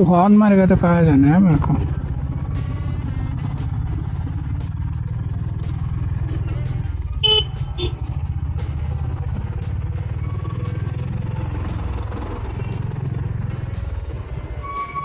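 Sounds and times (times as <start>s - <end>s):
motorcycle engine running: 0.0s - 15.0s
vehicle horn honk: 7.2s - 8.1s, 14.6s - 15.0s.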